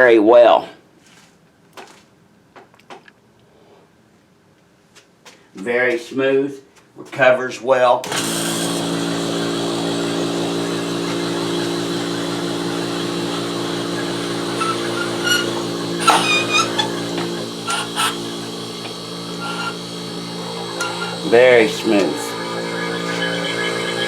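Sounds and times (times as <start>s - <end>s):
small pump motor running: 8.0s - 24.0s
short squeaks: 13.9s - 21.3s.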